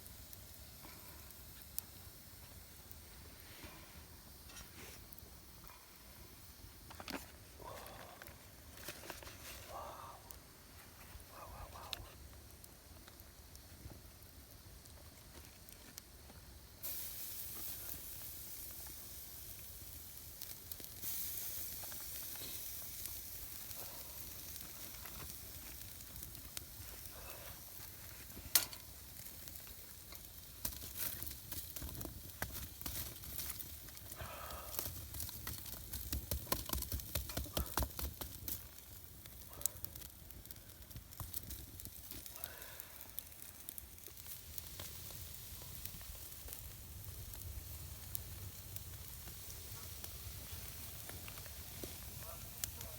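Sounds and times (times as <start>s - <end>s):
crackles and pops: 0.0s - 52.9s
meat sizzling over campfire: 0.0s - 52.9s.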